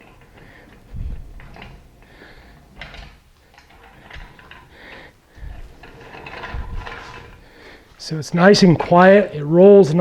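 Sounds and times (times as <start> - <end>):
caster wheels rolling on cement: 0.0 - 10.0.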